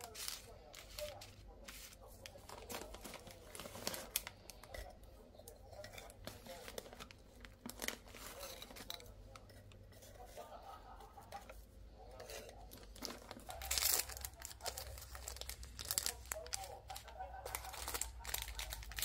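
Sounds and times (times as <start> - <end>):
packaging crinkling and tearing: 0.0 - 4.7, 6.2 - 9.1, 12.7 - 19.0.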